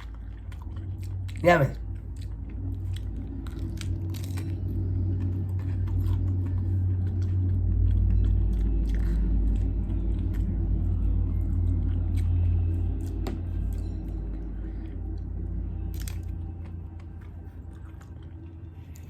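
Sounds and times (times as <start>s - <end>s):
small crunches and mouth clicks: 0.0s - 10.8s, 15.9s - 19.0s
person chewing food: 0.0s - 19.0s
steady low rumble: 0.0s - 19.0s.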